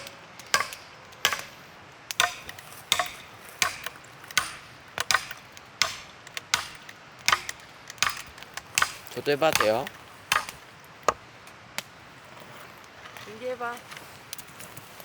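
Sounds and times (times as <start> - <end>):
axe chopping log: 0.0 - 11.2.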